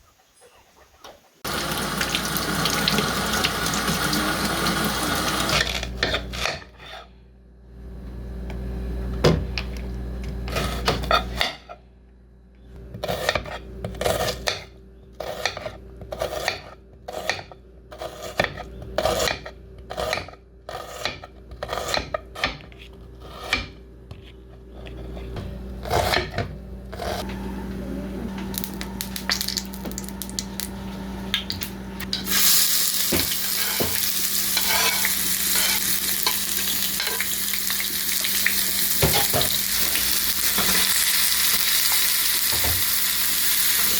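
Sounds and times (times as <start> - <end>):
food sizzling in hot oil: 1.4 - 5.5, 32.1 - 43.9.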